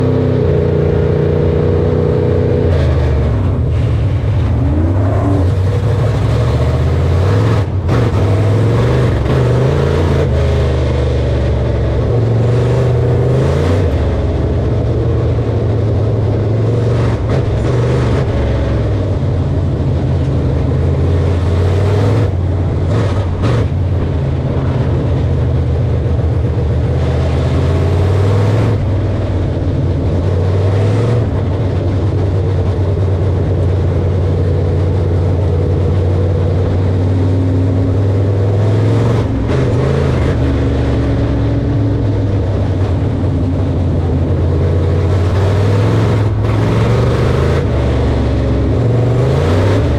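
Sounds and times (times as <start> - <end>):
harvesting machinery engine droning: 0.0 - 49.9.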